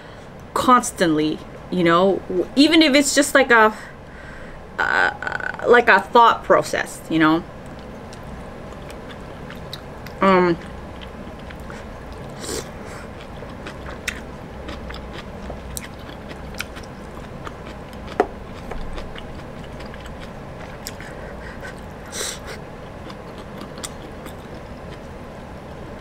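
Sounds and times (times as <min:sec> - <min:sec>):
close-miked chewing and biting: 0:07.6 - 0:25.1.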